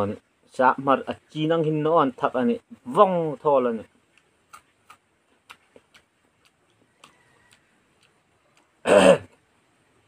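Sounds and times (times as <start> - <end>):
man talking: 0.0 - 4.0.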